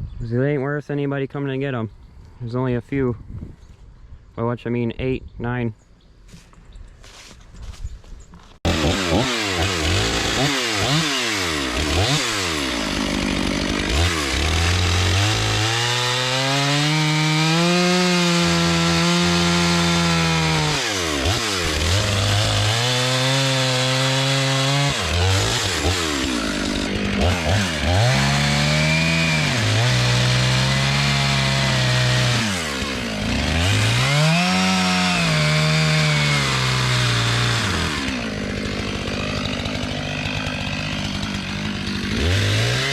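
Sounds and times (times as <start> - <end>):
chainsaw revving: 8.6 - 42.9.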